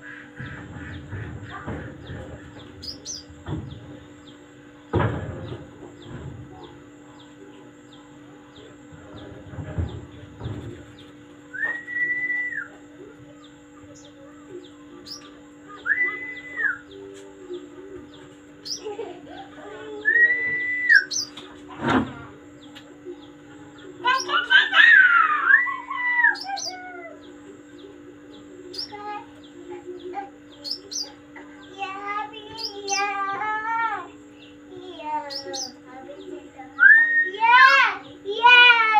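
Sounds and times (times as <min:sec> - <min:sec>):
songbirds chirping: 0:00.0 - 0:38.9
steady low hum: 0:00.0 - 0:38.9
bird long whistled notes: 0:15.1 - 0:17.0, 0:20.0 - 0:21.3.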